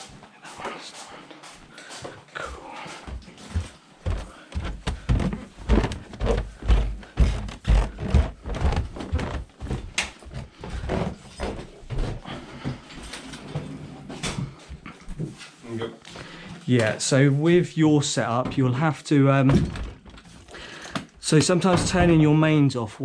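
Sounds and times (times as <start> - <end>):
footsteps going up stairs: 0.0 - 13.1, 19.5 - 22.4.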